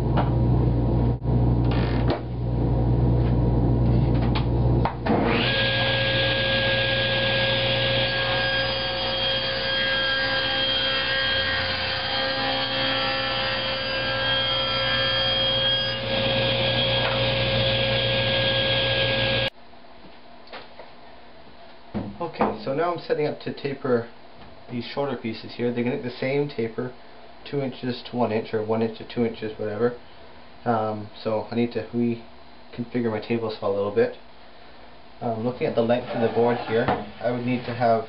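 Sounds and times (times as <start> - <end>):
steady whine: 0.0 - 19.5
table saw running: 5.1 - 19.5
dust collector running: 5.3 - 19.5.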